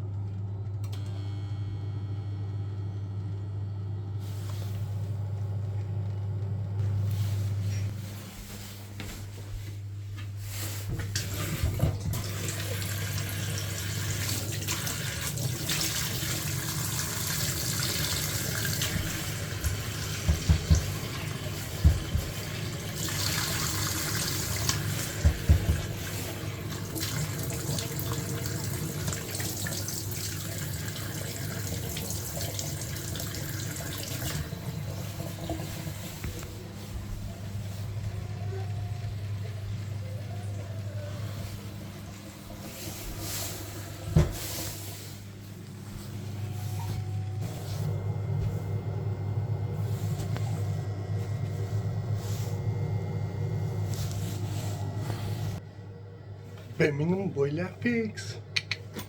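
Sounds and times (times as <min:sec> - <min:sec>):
water running from a tap: 0:11.2 - 0:36.4
steady low hum: 0:34.2 - 0:59.0.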